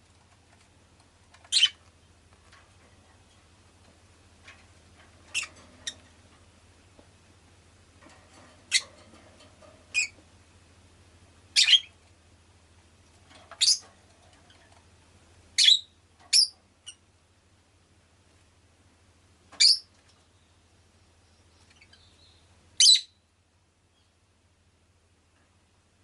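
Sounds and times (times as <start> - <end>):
lovebird chirping: 1.5 - 1.8, 5.3 - 6.0, 9.9 - 10.2, 11.5 - 11.9, 13.6 - 13.8, 15.6 - 17.0, 19.6 - 20.6, 21.2 - 23.2.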